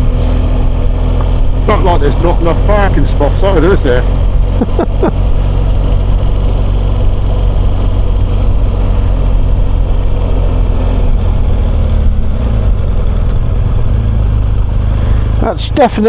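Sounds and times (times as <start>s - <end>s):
motorcycle engine droning: 0.0s - 16.0s.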